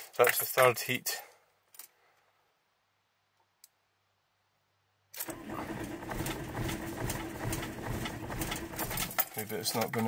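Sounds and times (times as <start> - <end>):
starter motor cranking engine: 5.2 - 9.2.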